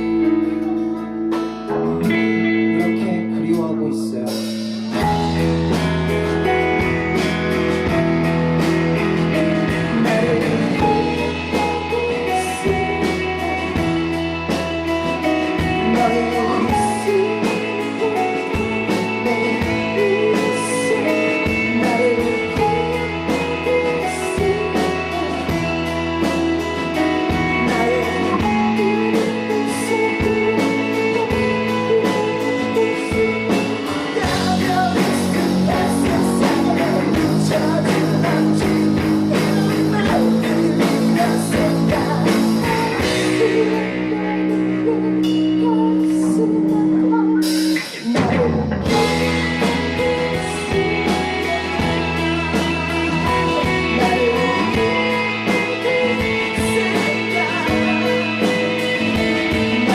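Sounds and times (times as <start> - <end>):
steady drum beat: 0.0 - 45.1, 47.4 - 59.9
guitars: 0.0 - 59.9
rock band playing live: 0.0 - 59.9.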